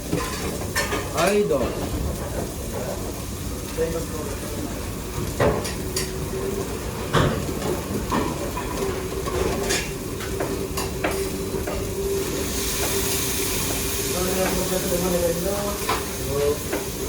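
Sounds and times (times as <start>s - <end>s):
food sizzling in a pan: 0.0s - 17.0s
hiss: 12.2s - 16.9s.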